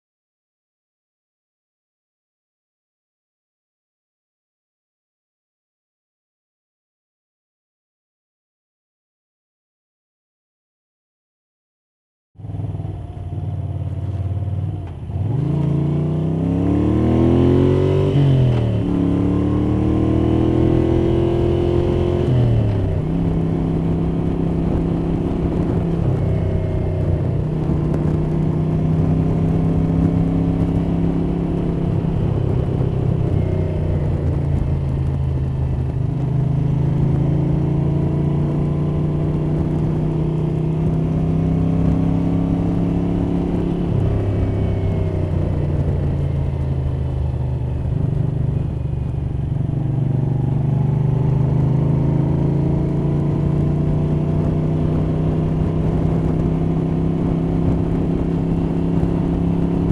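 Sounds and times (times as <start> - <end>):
motorcycle engine revving: 12.4 - 59.9
wind noise: 12.4 - 59.9.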